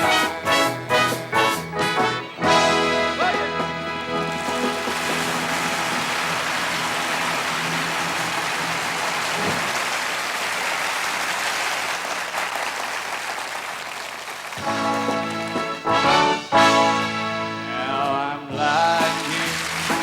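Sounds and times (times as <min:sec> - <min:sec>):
band with horns playing: 0:00.0 - 0:09.9, 0:14.6 - 0:20.0
audience applauding: 0:02.0 - 0:17.0, 0:18.9 - 0:20.0.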